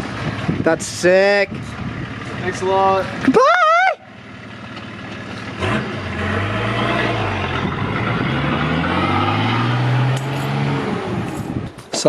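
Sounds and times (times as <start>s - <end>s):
car engine accelerating: 1.6s - 11.8s.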